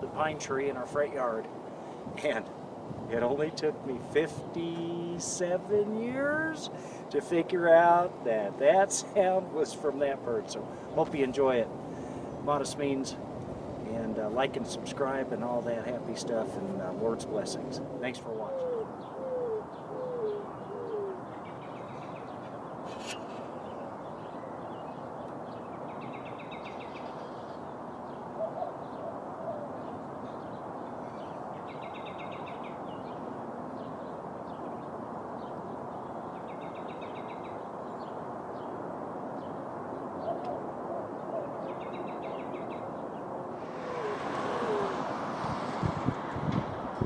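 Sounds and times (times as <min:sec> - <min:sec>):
city background noise: 0:00.0 - 0:47.0
wind: 0:00.0 - 0:47.0
bird cooing: 0:18.3 - 0:22.2, 0:22.9 - 0:23.9, 0:28.4 - 0:29.9, 0:40.2 - 0:42.8, 0:43.6 - 0:45.3.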